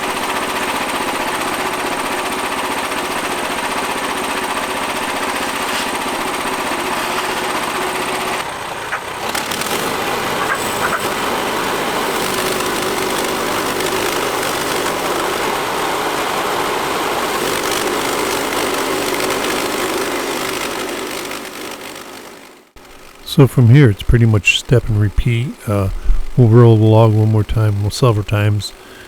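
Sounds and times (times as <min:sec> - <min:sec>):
sawmill engine running under load: 0:00.0 - 0:29.0
band blade cutting log: 0:05.6 - 0:06.0, 0:08.9 - 0:11.4.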